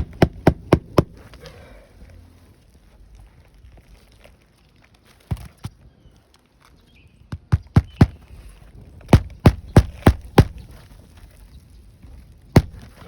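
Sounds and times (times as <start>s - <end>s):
hammer driving nails into shingles: 0.0s - 1.3s, 7.4s - 8.3s, 9.1s - 10.6s, 12.6s - 13.0s.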